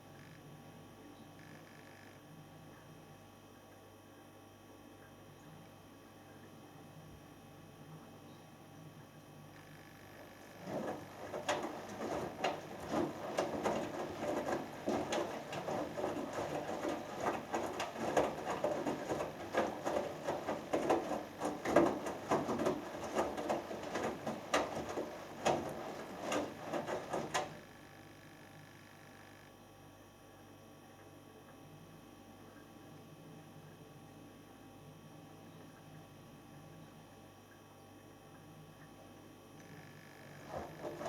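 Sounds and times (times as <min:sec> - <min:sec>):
faint steady hum: 0:00.0 - 0:41.0
washing machine drum tumbling laundry: 0:10.2 - 0:27.8, 0:40.1 - 0:41.0.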